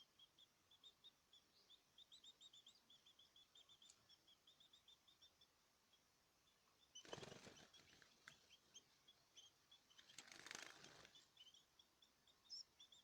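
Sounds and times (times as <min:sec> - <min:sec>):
small cage birds chirping: 0:00.0 - 0:13.0
wings flapping: 0:07.1 - 0:08.1, 0:10.2 - 0:11.1.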